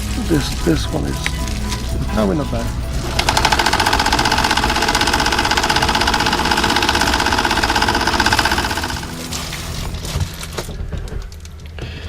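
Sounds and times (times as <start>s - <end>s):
sewing machine stitching: 3.0s - 9.9s.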